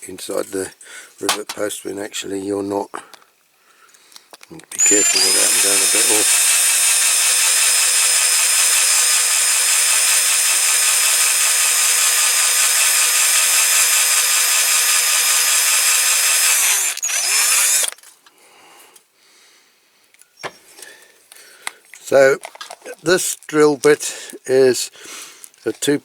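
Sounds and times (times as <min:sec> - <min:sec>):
small electric drill drilling: 0:04.7 - 0:18.0.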